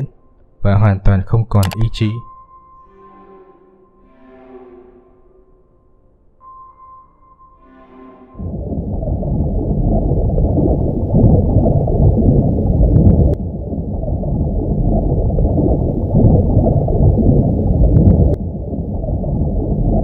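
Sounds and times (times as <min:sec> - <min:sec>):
low rumbling ambient drone: 0:02.2 - 0:20.0.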